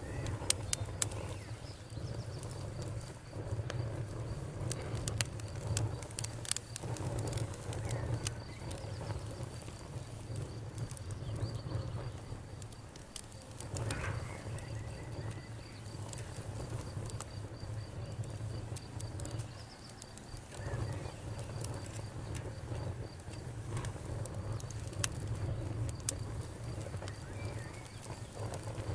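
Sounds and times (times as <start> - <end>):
campfire crackling and popping: 0.0 - 28.9
crickets chirping: 0.0 - 28.9.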